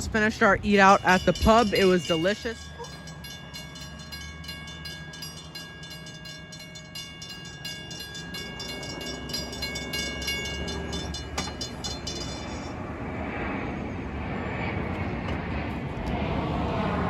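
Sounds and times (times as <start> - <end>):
train rumbling past: 0.0 - 17.0
fast ticking with ringing tones: 0.1 - 12.8.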